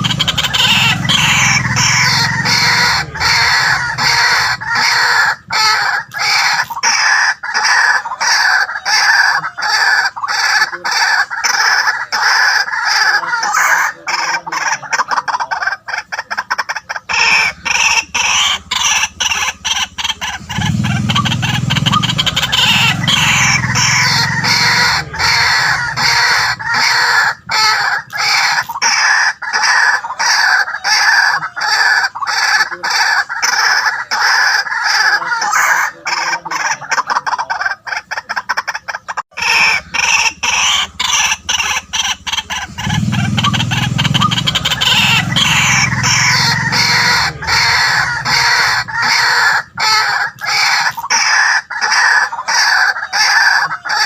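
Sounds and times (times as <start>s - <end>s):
bird harsh repeated calls: 0.0s - 54.0s
deeper low sound: 39.6s - 49.4s.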